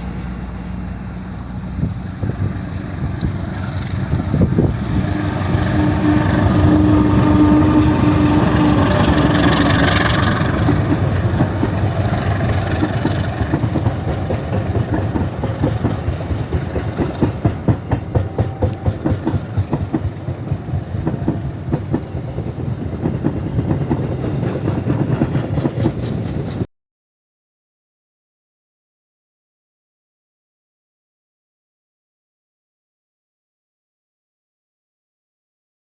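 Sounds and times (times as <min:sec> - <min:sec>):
train rumbling past: 0:00.0 - 0:26.7
train wheels clacking: 0:02.4 - 0:26.7
steady tone: 0:02.5 - 0:14.3.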